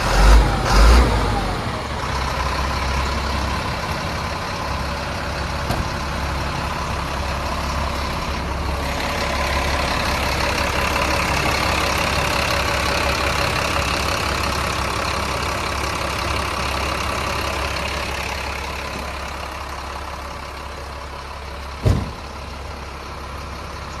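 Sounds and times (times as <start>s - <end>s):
diesel truck engine running: 0.0s - 24.0s
sharp thump: 21.8s - 22.3s.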